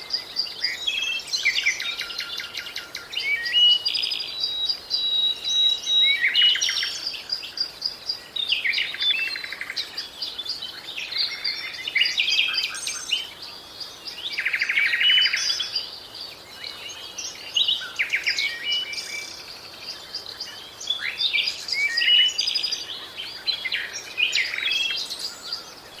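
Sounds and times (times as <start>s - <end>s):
birds chirping and trilling: 0.0s - 26.0s.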